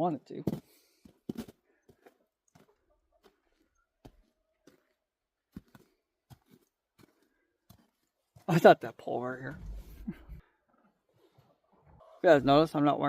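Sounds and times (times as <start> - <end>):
footsteps on frozen ground: 0.4 - 8.6.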